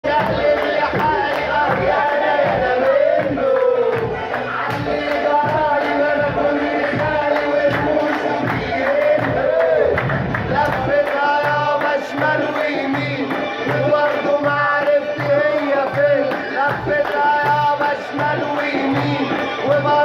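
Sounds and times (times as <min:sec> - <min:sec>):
low drum beat: 0:00.1 - 0:20.0
man singing ornamented melody: 0:10.5 - 0:20.0.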